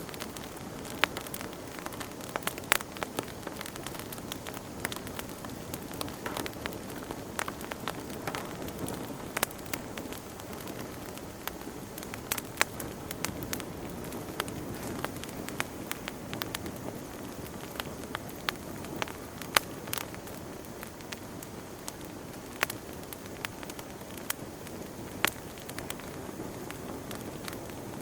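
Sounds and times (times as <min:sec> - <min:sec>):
fire crackling and popping: 0:00.0 - 0:28.0.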